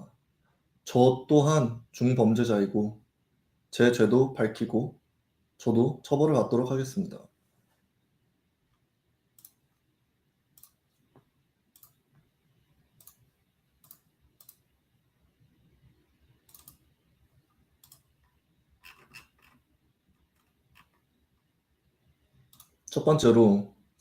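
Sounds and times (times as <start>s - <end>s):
faint computer clicks: 9.4s - 9.6s, 10.5s - 12.3s, 13.0s - 14.7s, 16.4s - 16.9s, 17.8s - 19.6s.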